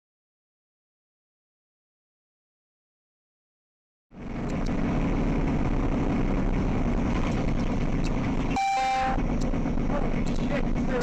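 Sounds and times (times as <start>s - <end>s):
vehicle engine and road noise: 4.1s - 11.0s
car horn: 8.5s - 9.2s.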